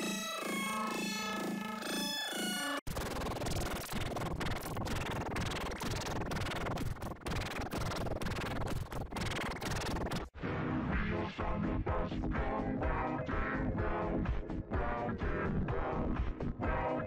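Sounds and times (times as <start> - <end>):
harsh distorted scratchy noise: 2.9 - 10.3.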